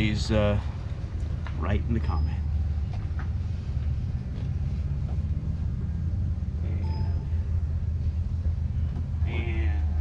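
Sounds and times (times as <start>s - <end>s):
low mechanical hum: 0.0s - 10.0s
faint short ringing tone: 6.7s - 7.4s.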